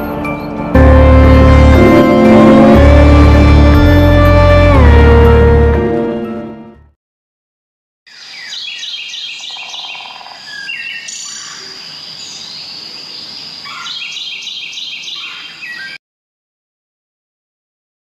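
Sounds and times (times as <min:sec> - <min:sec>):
small birds chirping: 0:08.1 - 0:16.0.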